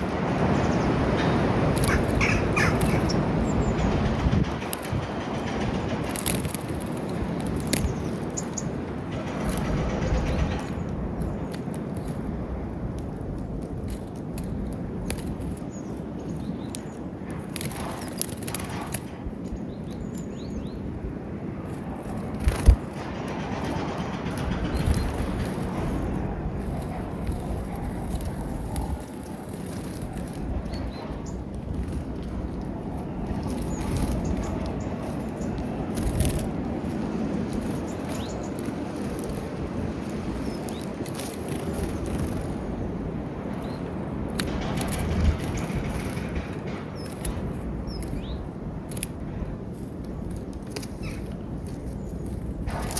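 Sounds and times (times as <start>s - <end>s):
small birds chirping: 0.0s - 5.0s, 6.9s - 12.2s, 14.4s - 21.0s, 23.7s - 42.5s, 43.4s - 46.4s, 47.0s - 48.6s, 50.8s - 52.9s
rustling: 21.6s - 52.9s.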